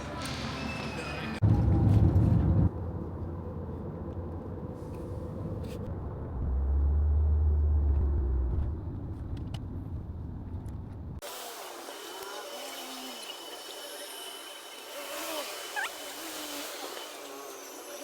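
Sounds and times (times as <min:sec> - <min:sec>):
car engine and road rumble: 0:01.4 - 0:11.2.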